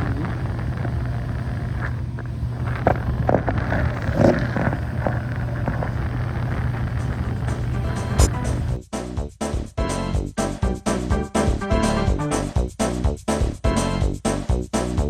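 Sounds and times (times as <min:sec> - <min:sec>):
air conditioner humming: 0:00.0 - 0:08.8
faint clicks and rustles: 0:00.0 - 0:08.8.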